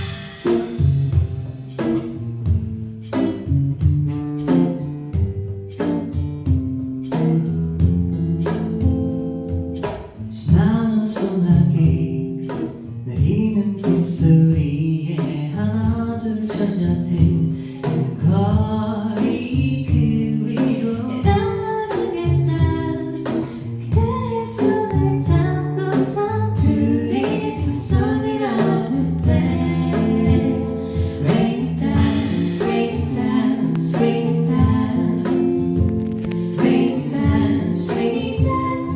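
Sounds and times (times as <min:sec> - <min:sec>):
live band playing pop song: 0:00.0 - 0:38.9
person singing: 0:13.1 - 0:38.9.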